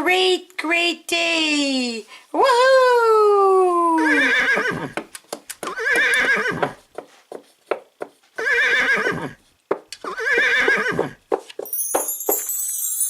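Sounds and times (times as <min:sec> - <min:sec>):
horse whinnying: 0:04.0 - 0:05.0, 0:05.7 - 0:06.8, 0:08.4 - 0:09.4, 0:10.0 - 0:11.2
hoof clip-clops: 0:04.9 - 0:08.2.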